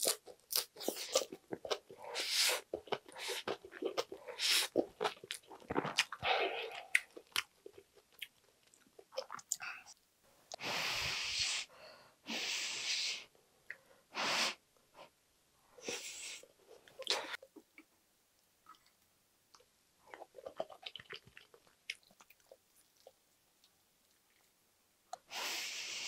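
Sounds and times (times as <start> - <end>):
chewing rice: 0.0 - 10.0, 18.6 - 24.5
loud breaths through nose: 10.6 - 13.3, 14.0 - 15.1, 25.3 - 26.0.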